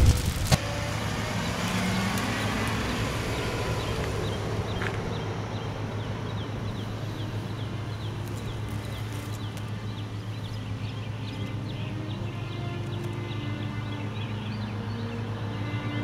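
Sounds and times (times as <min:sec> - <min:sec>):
street ambience hum: 0:00.0 - 0:16.0
small bird chirping: 0:01.8 - 0:15.1.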